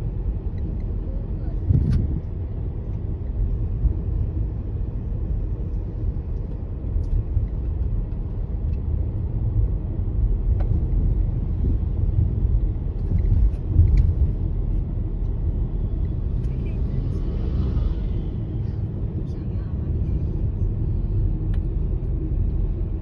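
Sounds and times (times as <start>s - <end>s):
car rumbling on the move: 0.0s - 23.0s.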